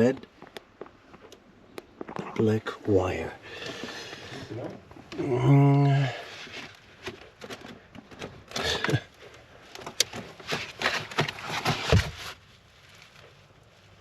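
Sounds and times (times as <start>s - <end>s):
hands scraping and rustling cable: 0.0s - 14.0s.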